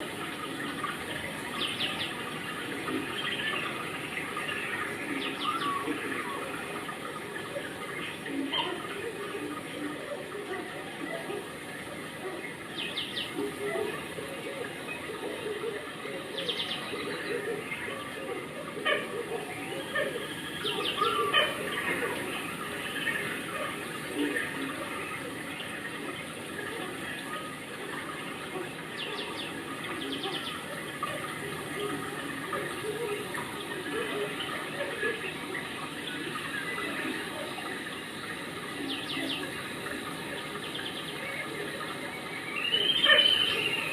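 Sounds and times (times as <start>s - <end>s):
faint voices: 0.0s - 43.9s
running water rushing: 0.0s - 43.9s
small birds chirping: 0.0s - 43.9s
bird chirps: 42.6s - 43.9s.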